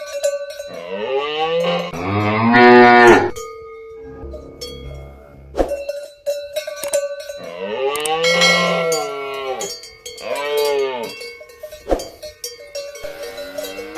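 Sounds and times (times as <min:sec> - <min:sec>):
cowbell clanking: 0:00.0 - 0:13.9
cow mooing: 0:00.7 - 0:03.4, 0:04.0 - 0:05.6, 0:07.4 - 0:11.2, 0:13.0 - 0:13.9.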